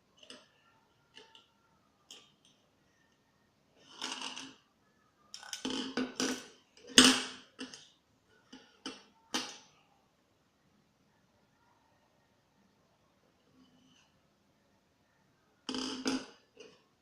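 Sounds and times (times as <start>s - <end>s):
small hard objects clicking and knocking: 3.8s - 4.6s.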